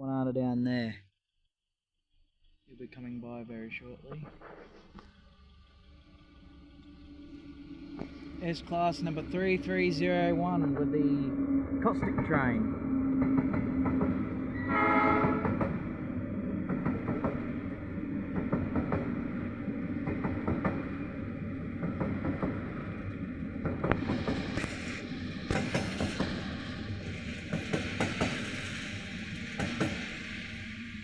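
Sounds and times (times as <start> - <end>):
freight train wheels rumbling: 3.2 - 31.0
wheels clanking on rail joints: 16.6 - 31.0
hiss: 24.0 - 31.0.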